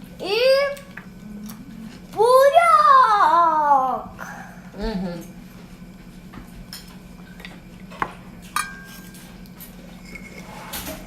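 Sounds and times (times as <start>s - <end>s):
steady low hum: 0.0s - 11.0s
utensils clinking against dishes: 6.7s - 11.0s.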